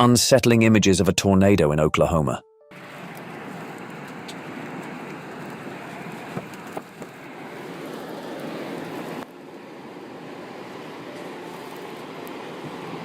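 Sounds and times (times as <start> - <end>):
storm wind and rain rushing: 2.8 - 13.0.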